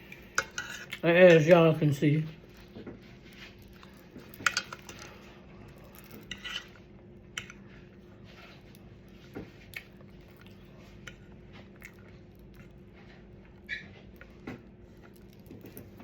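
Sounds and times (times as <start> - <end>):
utensil scraping a dish: 0.2 - 1.5, 6.2 - 6.8.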